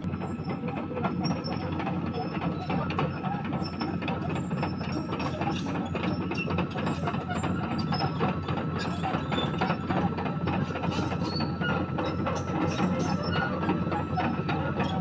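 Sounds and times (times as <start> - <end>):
excavator engine running: 6.7 - 15.0.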